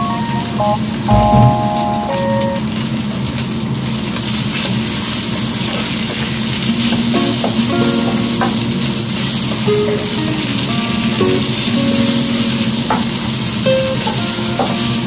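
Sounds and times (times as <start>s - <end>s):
background music: 0.0s - 2.6s, 7.0s - 15.0s
meat sizzling in a wok: 2.7s - 15.0s.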